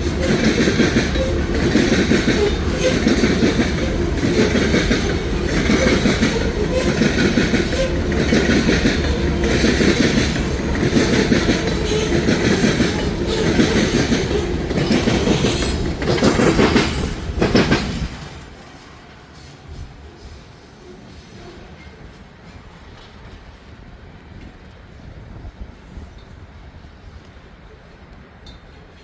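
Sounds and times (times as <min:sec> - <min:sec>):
freight car wheels clickety-clack: 0:00.0 - 0:18.3.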